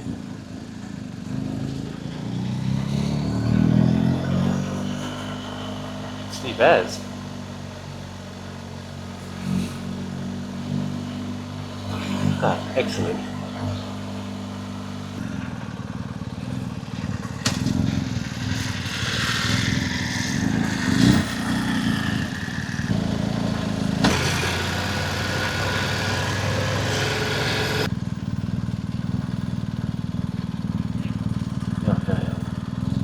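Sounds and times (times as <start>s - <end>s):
motorcycle engine running: 0.0s - 33.0s
hiss: 17.5s - 22.9s, 24.0s - 27.9s.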